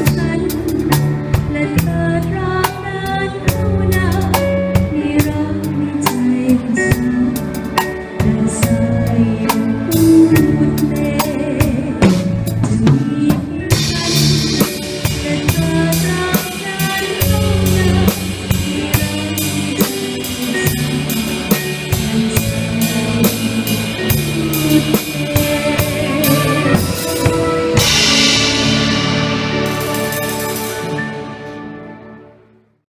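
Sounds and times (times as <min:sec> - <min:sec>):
drum kit steady beat: 0:00.0 - 0:31.5
orchestra playing: 0:00.0 - 0:32.8
cymbal crash: 0:26.0 - 0:31.6.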